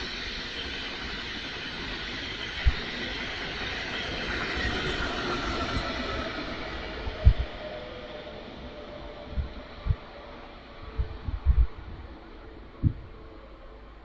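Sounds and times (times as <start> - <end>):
faint whine: 0.0 - 14.0
train wheels rushing on rails: 0.0 - 14.0
low thump: 7.2 - 7.5.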